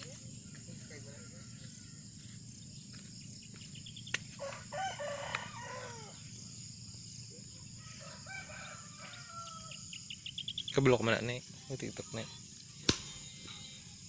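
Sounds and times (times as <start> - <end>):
rooster crowing: 1.0 - 2.4, 4.3 - 6.4, 7.6 - 10.0.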